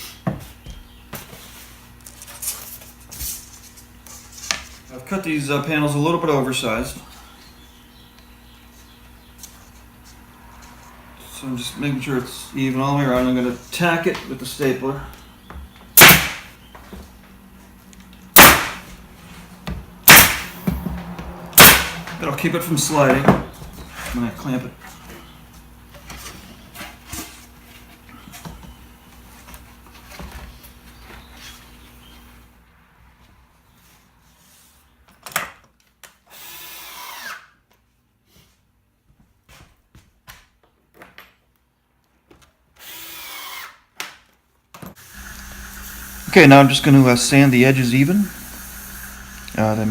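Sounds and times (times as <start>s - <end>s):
sharp knock: 16.0s - 16.5s, 18.4s - 18.8s, 20.1s - 20.8s, 21.6s - 22.0s
stapler shots: 16.0s - 16.6s, 18.3s - 18.9s, 20.0s - 20.6s, 21.6s - 22.1s
power drill whirring: 36.3s - 37.4s, 42.8s - 43.8s.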